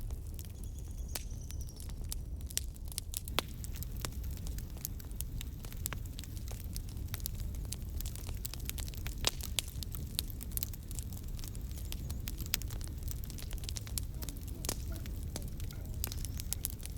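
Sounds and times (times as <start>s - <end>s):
wood fire crackling: 0.0s - 16.9s.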